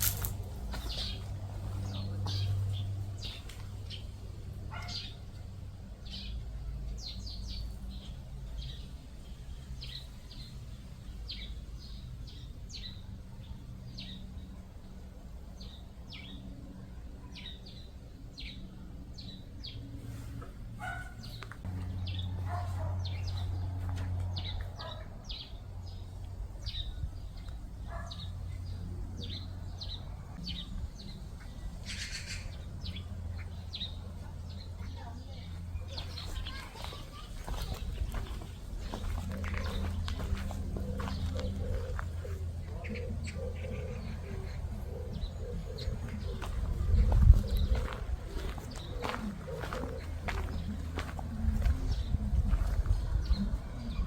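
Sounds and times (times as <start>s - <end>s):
small birds chirping: 0.0s - 14.9s, 15.5s - 54.0s
steady low rumble: 21.4s - 54.0s.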